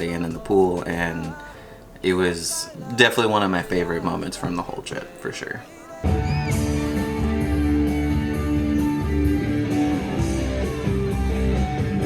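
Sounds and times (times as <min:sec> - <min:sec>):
music with electric guitar: 0:05.8 - 0:12.0.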